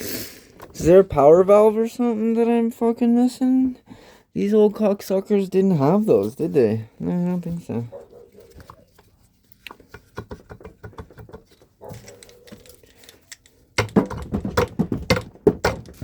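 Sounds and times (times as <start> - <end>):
metal parts clicking and knocking: 9.7 - 16.0.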